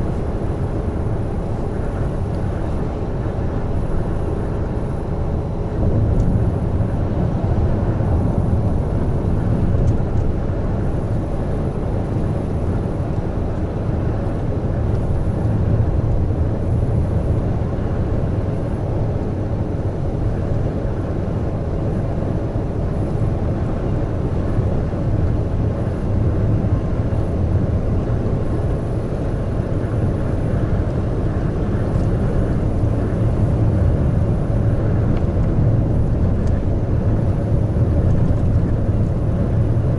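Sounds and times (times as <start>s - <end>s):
road and tyre noise: 0.0s - 39.9s
truck engine drone: 0.0s - 39.9s.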